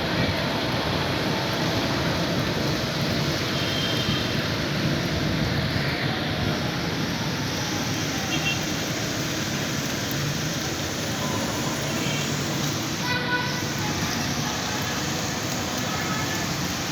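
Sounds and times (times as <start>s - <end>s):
road traffic on wet streets: 0.0s - 16.9s.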